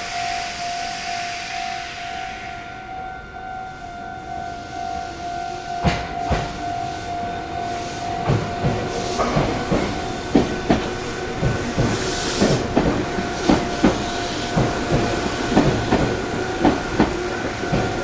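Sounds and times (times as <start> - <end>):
air hiss: 0.0 - 2.9, 6.2 - 18.0
steady high tone: 0.0 - 18.0
train wheels clacking over joints: 5.8 - 18.0.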